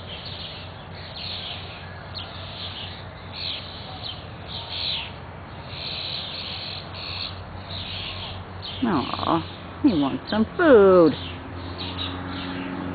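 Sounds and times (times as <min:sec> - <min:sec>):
harsh raspy bird calls: 0:05.7 - 0:10.4.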